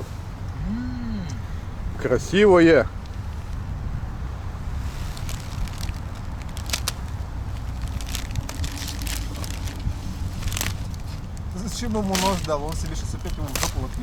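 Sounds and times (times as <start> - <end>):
steady low rumble: 0.0 - 14.0
cardboard and plastic crackling: 4.6 - 14.0.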